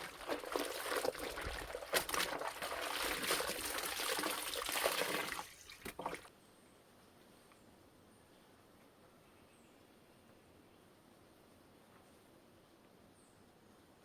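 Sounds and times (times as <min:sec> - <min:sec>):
water sloshing and splashing: 0:00.0 - 0:06.3.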